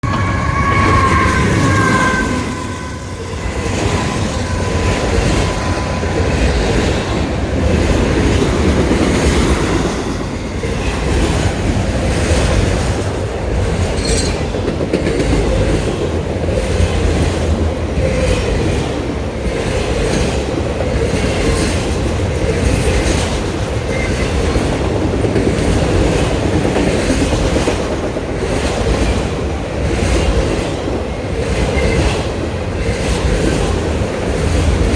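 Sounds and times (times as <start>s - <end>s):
train horn chord: 0.0s - 7.6s
freight train rumbling past: 0.0s - 34.9s.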